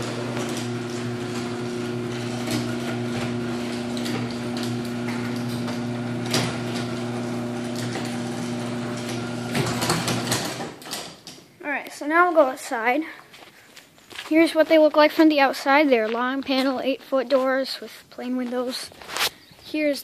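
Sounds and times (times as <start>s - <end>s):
garage door opener motor hum: 0.0s - 11.0s.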